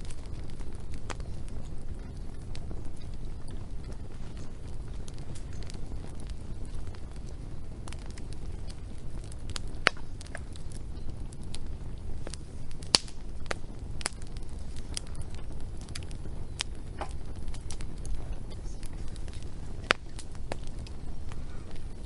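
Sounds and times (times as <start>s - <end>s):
low rumble of flames: 0.0s - 22.0s
wood fire crackles and pops: 0.0s - 22.0s.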